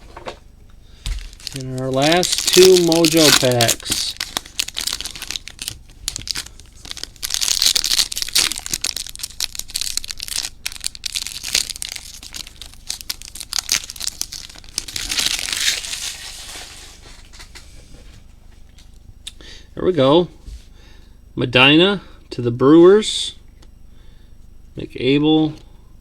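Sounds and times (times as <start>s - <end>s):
foil wrappers tearing and crinkling: 1.0s - 17.6s.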